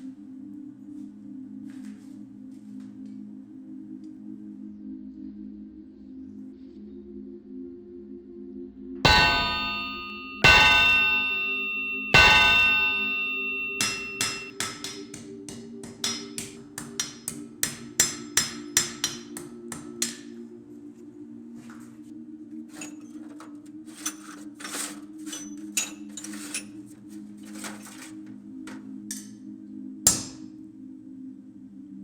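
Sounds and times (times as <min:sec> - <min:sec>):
hammer striking metal on anvil: 0:09.1 - 0:20.3, 0:30.1 - 0:30.4.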